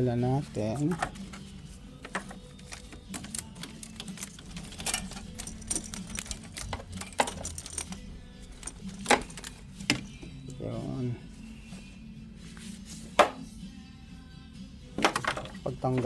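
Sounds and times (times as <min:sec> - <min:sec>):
hands clicking on engine parts: 0:00.9 - 0:10.3.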